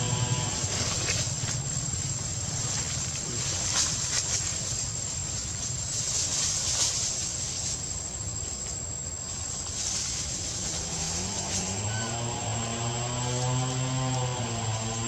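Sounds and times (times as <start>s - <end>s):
engine rising in pitch: 0.0s - 1.6s, 10.6s - 15.0s
high-pitched insect drone: 0.0s - 4.1s, 5.8s - 15.0s
low rumble: 0.0s - 6.2s.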